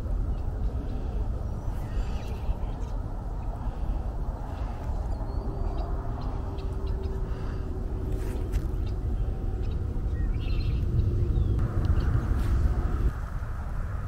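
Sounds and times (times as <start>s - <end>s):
steady low rumbling: 0.0s - 14.0s
faint bird chirps: 0.2s - 3.8s.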